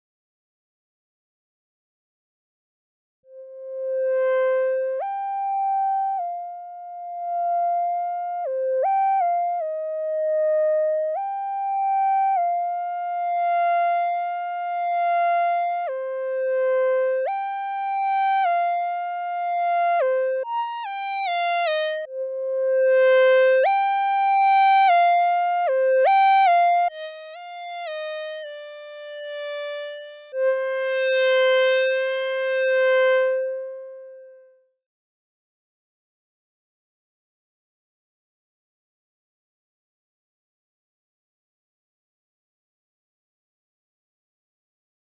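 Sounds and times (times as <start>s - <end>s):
synthesizer lead line: 26.9s - 33.4s.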